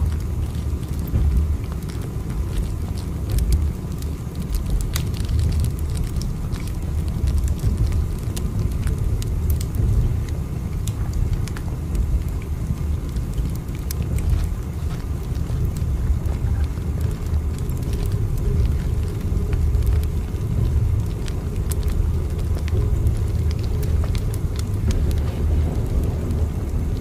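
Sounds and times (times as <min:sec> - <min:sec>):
small clicks and creaks: 0:00.0 - 0:26.8
train rumbling: 0:00.0 - 0:27.0.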